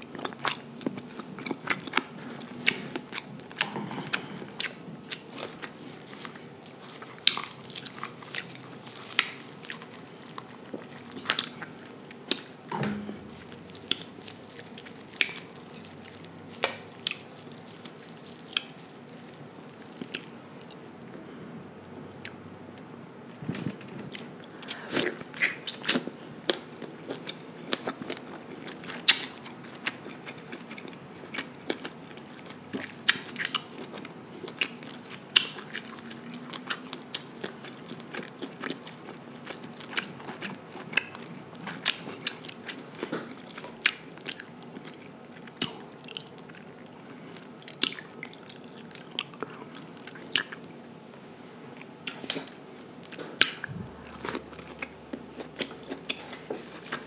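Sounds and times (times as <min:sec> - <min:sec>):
wet mouth chewing: 0:51.8 - 0:57.0.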